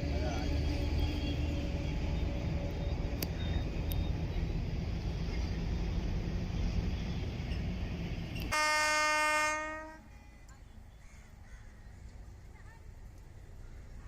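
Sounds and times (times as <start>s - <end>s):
express train passing: 0.0s - 14.0s
locomotive horn blast: 8.4s - 10.5s.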